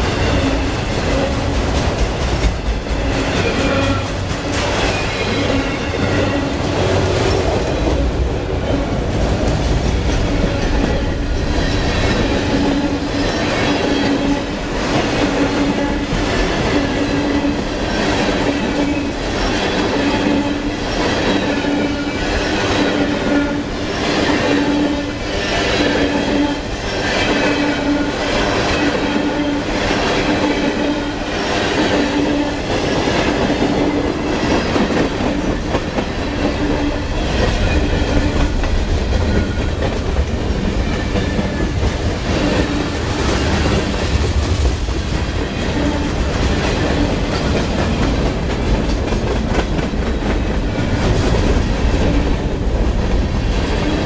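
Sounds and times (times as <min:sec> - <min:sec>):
train wheels clacking over joints: 0:00.0 - 0:08.1.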